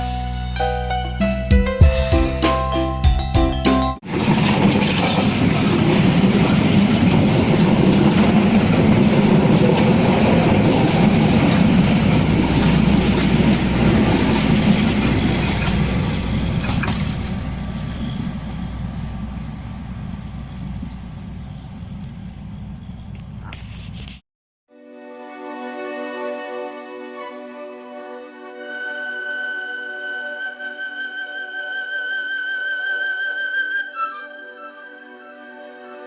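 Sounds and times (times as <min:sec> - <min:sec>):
train wheels rumbling on rails: 0:04.0 - 0:24.1.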